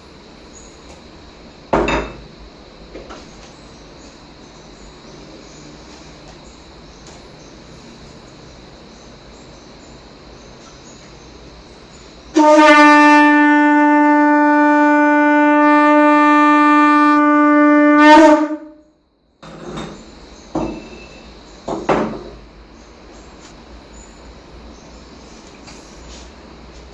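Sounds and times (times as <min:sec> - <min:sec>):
conch shell blown: 0:12.3 - 0:19.0
sharp knocks: 0:21.7 - 0:22.4.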